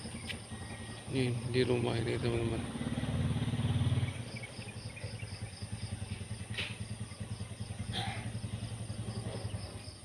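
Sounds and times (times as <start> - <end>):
crickets chirping: 0.0 - 10.0
small engine idling: 0.0 - 10.0.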